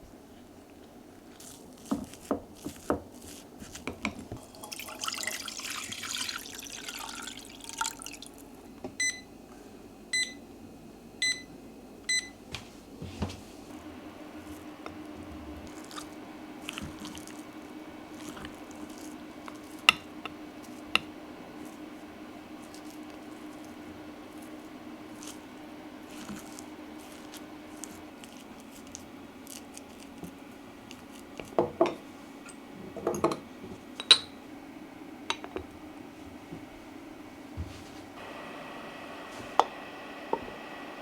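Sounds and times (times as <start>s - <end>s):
appliance humming: 0.0s - 41.0s
running water: 4.3s - 8.4s.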